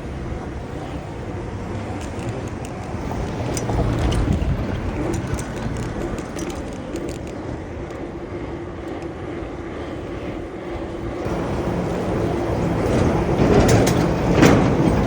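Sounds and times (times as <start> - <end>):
hum of nearby vehicles: 0.0 - 15.0
road and wind rush: 0.0 - 15.0.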